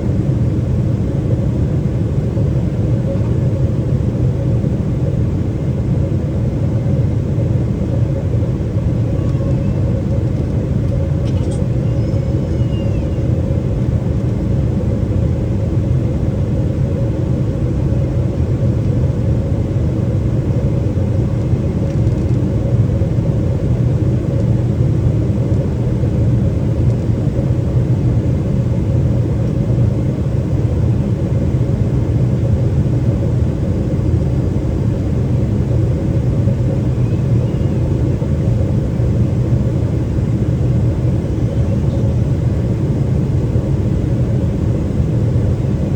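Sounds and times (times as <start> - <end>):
airplane cabin low rumble: 0.0 - 45.9.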